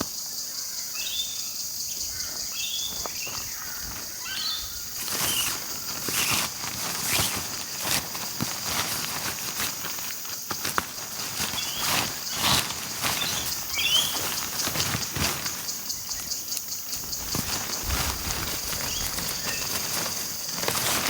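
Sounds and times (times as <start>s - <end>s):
high insect drone: 0.0s - 21.0s
bird chirps: 0.8s - 6.3s, 13.1s - 19.8s
camping gear rustling and knocking: 1.9s - 21.0s.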